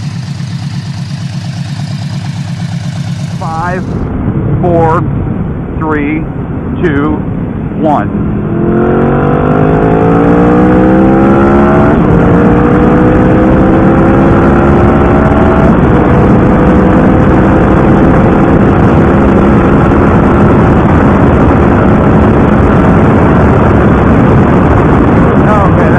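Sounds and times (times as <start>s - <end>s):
motorcycle engine accelerating: 0.0s - 4.6s, 8.2s - 25.9s.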